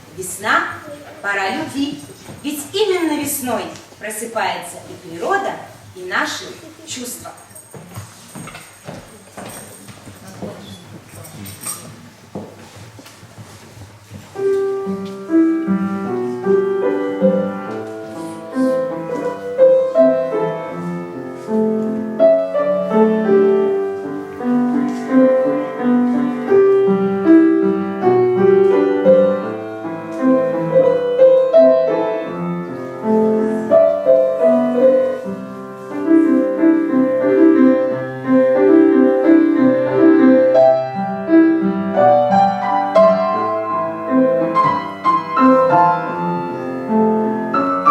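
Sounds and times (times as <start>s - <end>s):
classical piano piece: 11.7s - 47.9s.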